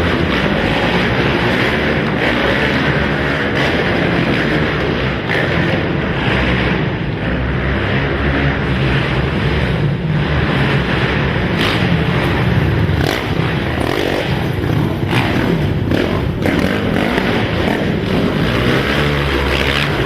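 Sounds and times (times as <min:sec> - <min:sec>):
quad engines racing: 0:00.0 - 0:20.0.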